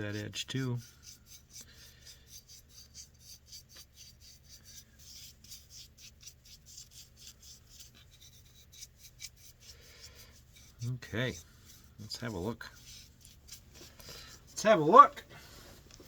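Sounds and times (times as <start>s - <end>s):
rhythmic rubbing on wood: 0.0s - 16.0s.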